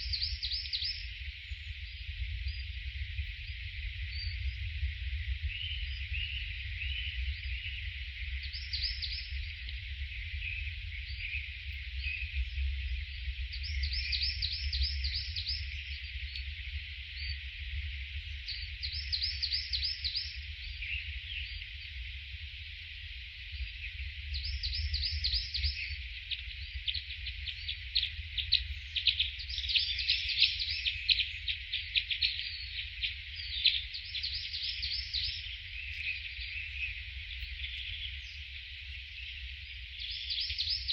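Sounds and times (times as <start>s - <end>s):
birds chirping: 24.4s - 40.9s.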